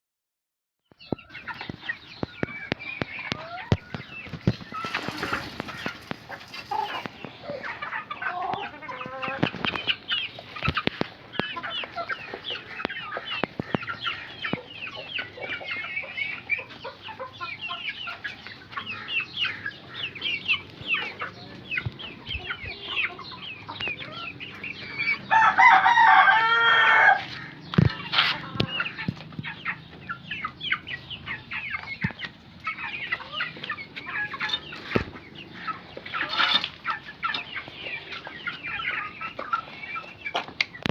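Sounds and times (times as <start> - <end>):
chickens clucking and chirping: 0.9 - 40.9
rooster crowing: 25.3 - 27.4.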